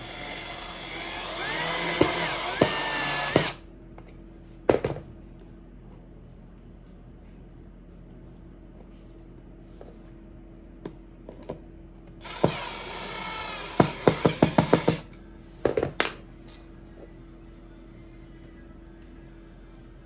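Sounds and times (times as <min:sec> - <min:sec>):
power tool running: 0:00.0 - 0:03.6, 0:12.2 - 0:15.1.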